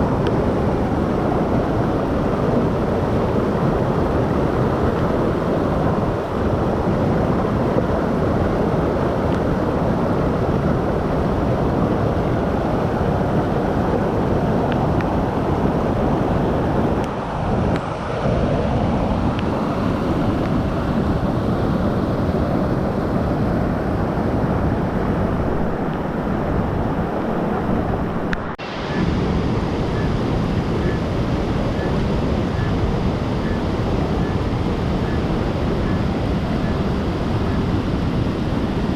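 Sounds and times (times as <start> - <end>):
stream rushing: 0.0 - 38.9.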